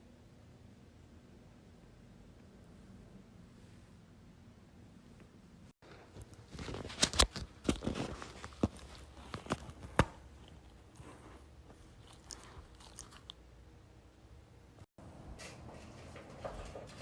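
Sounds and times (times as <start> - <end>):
puppy chewing and crunching: 6.6 - 13.5.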